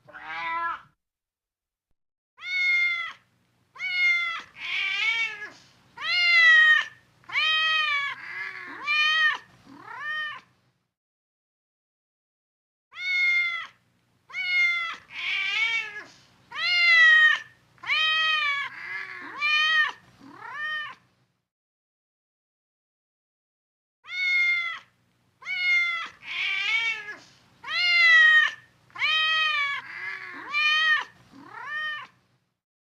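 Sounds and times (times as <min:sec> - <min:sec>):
cat meowing: 0:00.0 - 0:01.0, 0:02.4 - 0:03.2, 0:03.8 - 0:10.5, 0:12.9 - 0:21.0, 0:24.0 - 0:32.2.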